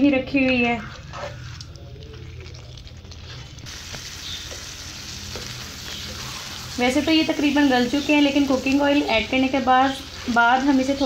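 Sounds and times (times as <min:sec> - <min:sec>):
spatula scraping a pan: 0:00.8 - 0:01.6
food sizzling in oil in a pan: 0:03.6 - 0:11.0.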